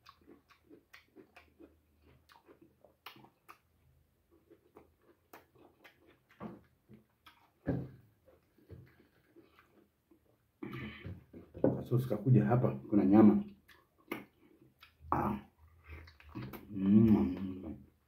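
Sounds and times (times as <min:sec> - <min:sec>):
person chewing food: 0:00.0 - 0:11.6, 0:13.5 - 0:18.0.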